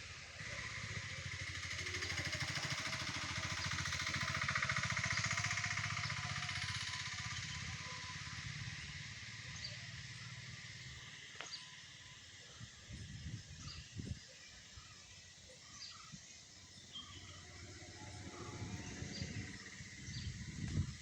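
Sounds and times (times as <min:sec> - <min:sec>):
passing vehicle engine: 0:00.0 - 0:11.4, 0:16.9 - 0:21.0
bird chirps: 0:13.2 - 0:21.0.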